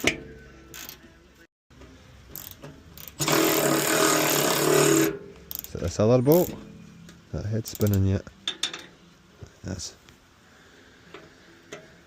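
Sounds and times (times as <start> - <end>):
cordless ratchet wrench running: 2.3 - 5.8.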